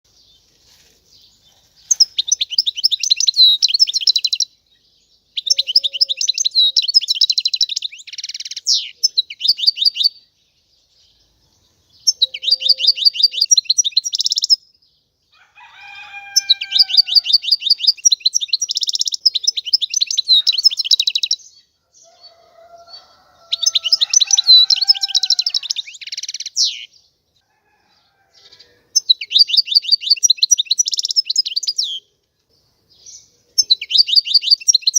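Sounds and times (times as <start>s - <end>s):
goldfinch buzzy trilling song: 12.0s - 14.6s, 15.9s - 21.4s.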